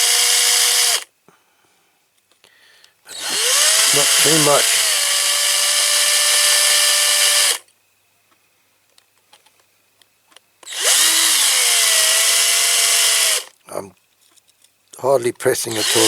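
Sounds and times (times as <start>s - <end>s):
small electric drill whining: 0.0s - 1.1s, 3.1s - 7.7s, 10.6s - 13.6s, 15.7s - 16.0s.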